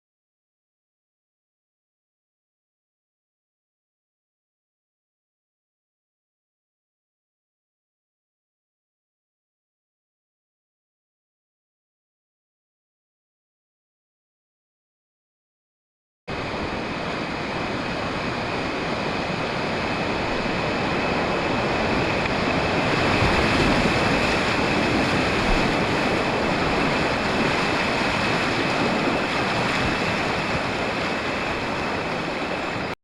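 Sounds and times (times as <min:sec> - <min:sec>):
river water rushing: 0:16.3 - 0:33.0.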